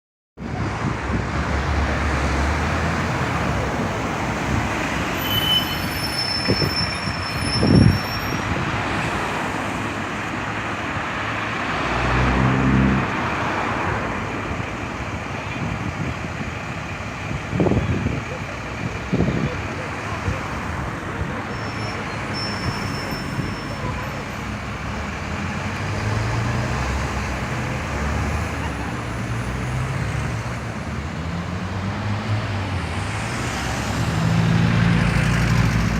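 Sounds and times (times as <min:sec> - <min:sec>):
bus engine hum: 0:00.4 - 0:35.9
street traffic noise: 0:00.4 - 0:35.9.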